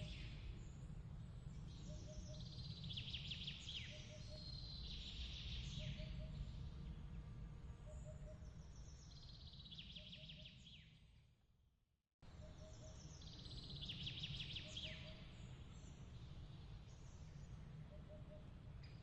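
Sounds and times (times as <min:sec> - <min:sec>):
low steady rumble: 0:00.0 - 0:09.8.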